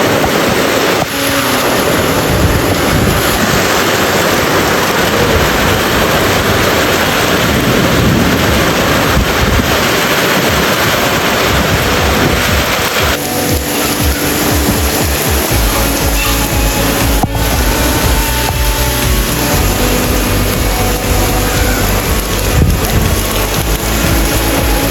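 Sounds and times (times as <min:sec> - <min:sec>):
heavy rain pouring: 0:00.0 - 0:24.9
wind rumbling on microphone: 0:00.0 - 0:24.9.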